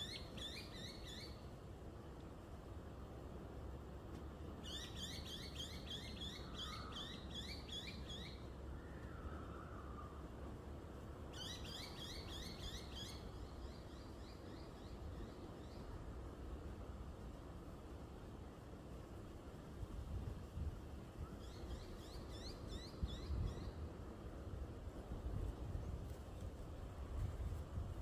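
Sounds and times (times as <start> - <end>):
bird chirping: 0.0 - 1.4, 11.3 - 15.9.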